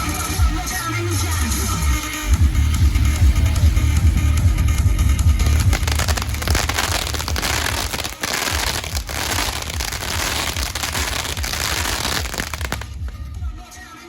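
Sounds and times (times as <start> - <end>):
steady low rumble: 2.2 - 13.6
pyrotechnics crackling and hissing: 5.3 - 13.2.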